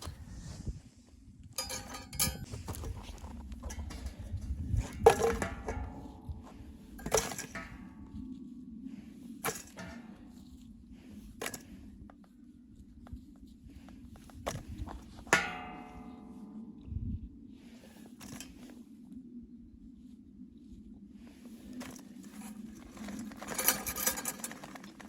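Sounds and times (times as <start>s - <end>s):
steady low hum: 0.0s - 24.3s
metallic clanks: 1.6s - 8.0s.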